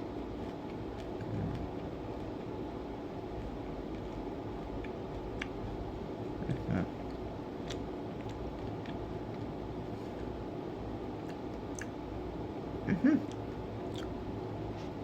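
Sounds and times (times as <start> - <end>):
low room hum: 0.0 - 15.0
mouth clicks from chewing: 6.4 - 9.5, 13.3 - 14.2.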